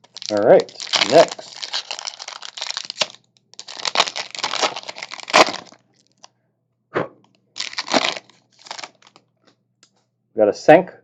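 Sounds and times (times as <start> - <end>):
foil wrapper crinkling and tearing: 0.0 - 6.3, 7.6 - 9.2.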